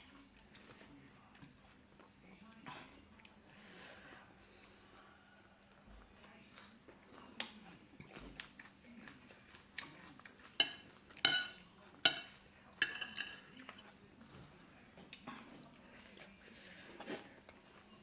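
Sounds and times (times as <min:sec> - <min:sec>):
cutlery clinking against dishes: 0:09.8 - 0:14.0.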